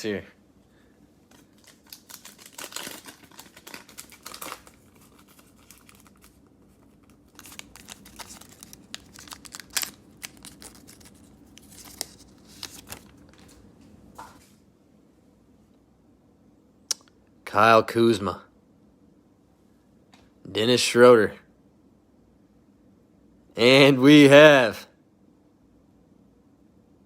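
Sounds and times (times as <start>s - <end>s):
cellophane wrapper crinkling and tearing: 1.3s - 13.6s.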